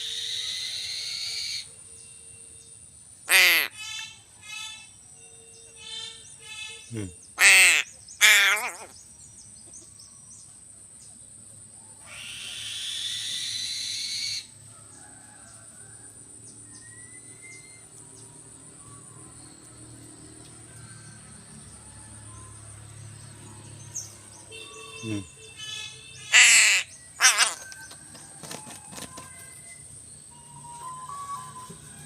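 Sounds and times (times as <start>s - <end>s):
crows cawing: 3.3s - 4.1s, 6.7s - 8.9s, 25.0s - 27.9s.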